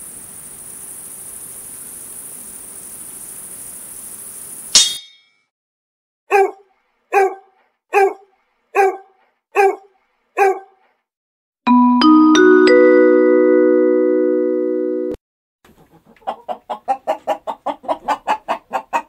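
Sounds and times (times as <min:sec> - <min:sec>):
crickets chirring: 0:00.0 - 0:04.7
metallic sword clang: 0:04.8 - 0:05.4
dog barking: 0:06.3 - 0:10.8.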